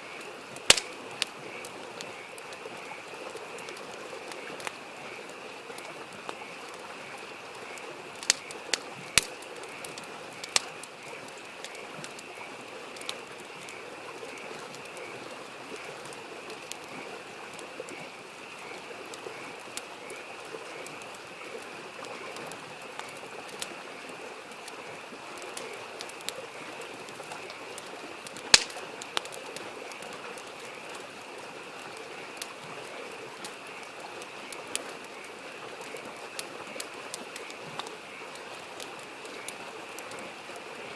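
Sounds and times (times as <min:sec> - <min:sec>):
campfire crackling: 0:00.0 - 0:40.9
frogs chorus: 0:00.0 - 0:40.9
stream babbling: 0:00.0 - 0:40.9.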